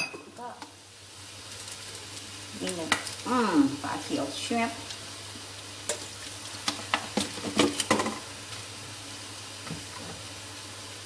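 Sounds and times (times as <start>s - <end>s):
kitchen utensils clinking: 0.0s - 0.4s
stir-fry sizzling in a pan: 0.0s - 11.0s.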